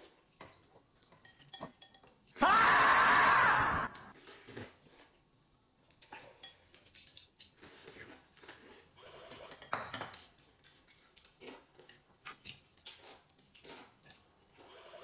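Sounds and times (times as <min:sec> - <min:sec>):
utensils clinking against dishes: 0:00.5 - 0:02.4, 0:06.0 - 0:10.4.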